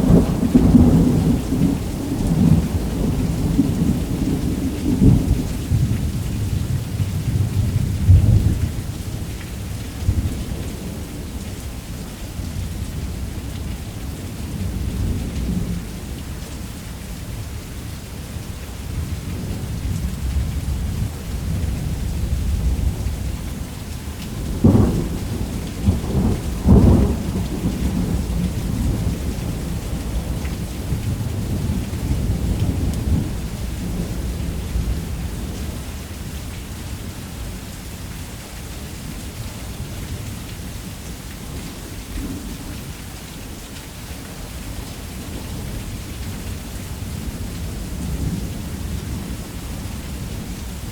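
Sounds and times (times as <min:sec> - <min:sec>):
rolling thunder: 0:00.0 - 0:09.3, 0:19.4 - 0:35.8
heavy rain: 0:00.0 - 0:50.9.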